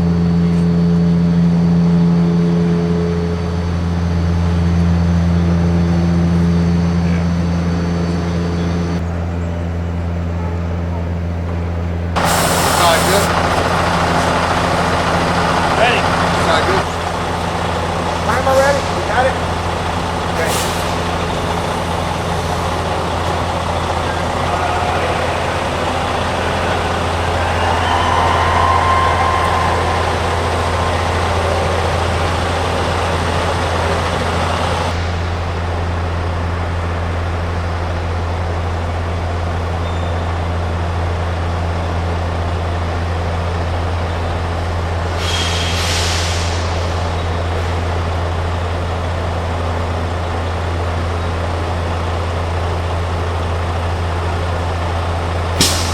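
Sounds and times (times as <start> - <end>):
diesel truck engine droning: 0.0 - 55.9
noisy rush: 11.5 - 53.0
air hiss burst: 12.2 - 13.6, 45.2 - 46.9, 55.6 - 55.9.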